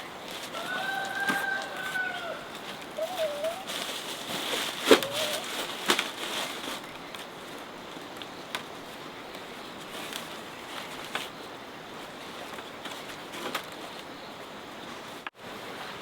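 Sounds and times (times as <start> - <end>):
rooster crowing: 0.5 - 3.6.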